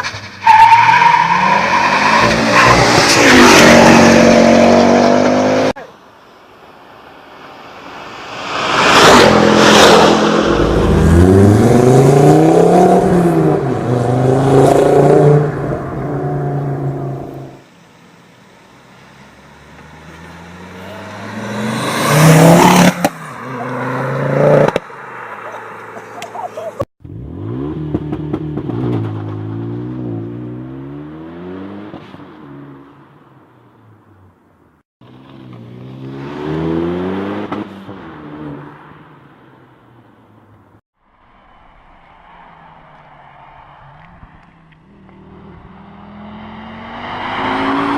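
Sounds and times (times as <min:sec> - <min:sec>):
car engine accelerating: 0:08.8 - 0:17.6.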